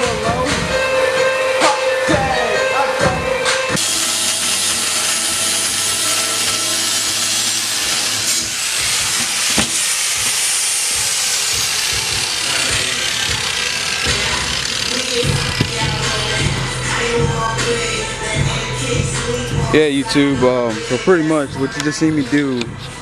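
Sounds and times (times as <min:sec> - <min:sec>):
power grinder cutting metal: 0:03.8 - 0:17.1.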